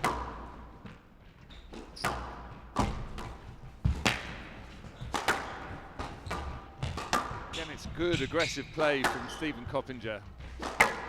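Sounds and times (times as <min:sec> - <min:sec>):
squash ball thwacks: 0:00.0 - 0:01.0, 0:01.8 - 0:08.2, 0:09.0 - 0:09.5, 0:10.4 - 0:11.0.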